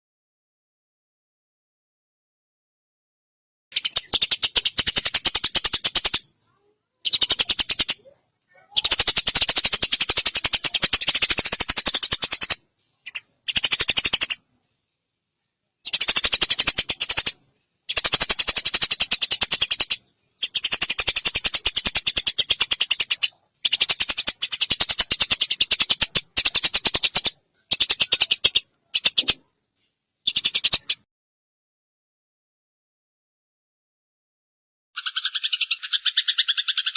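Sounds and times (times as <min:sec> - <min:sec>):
sparrows chattering: 0:03.7 - 0:14.4, 0:15.8 - 0:29.5, 0:30.2 - 0:31.0, 0:35.0 - 0:36.9.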